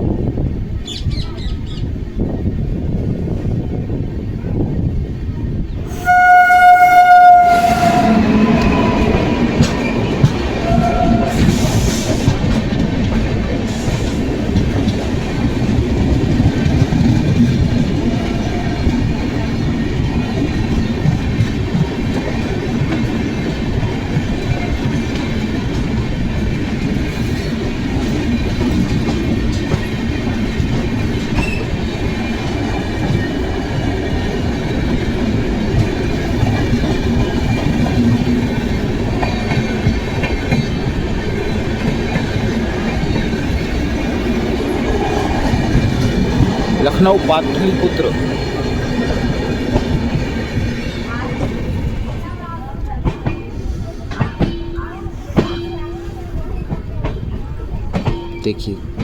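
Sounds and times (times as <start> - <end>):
train wheels rumbling on track: 0.0 - 59.0
rail joint clacks: 5.9 - 59.0.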